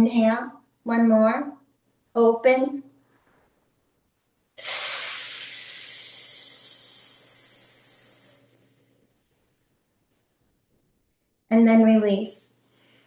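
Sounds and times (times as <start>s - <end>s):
woman exhaling hiss: 4.6s - 9.2s.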